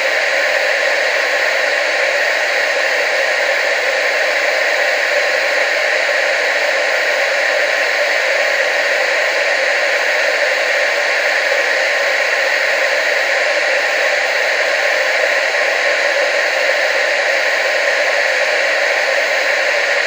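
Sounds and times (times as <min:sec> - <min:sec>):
television static hiss: 0:00.0 - 0:20.0.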